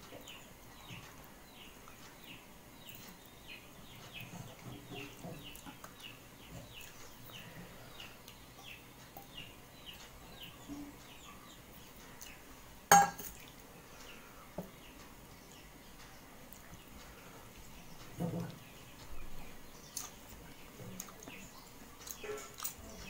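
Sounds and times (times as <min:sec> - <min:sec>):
dishware clink: 0:12.9 - 0:13.4.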